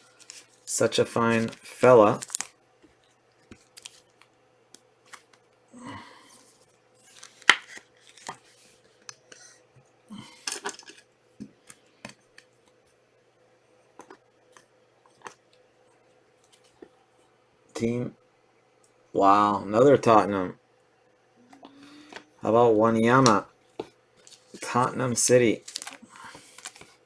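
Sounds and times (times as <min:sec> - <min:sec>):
foil wrappers rustling: 0:00.0 - 0:02.6, 0:07.0 - 0:08.8, 0:25.5 - 0:27.0
cards clicking: 0:01.4 - 0:02.5.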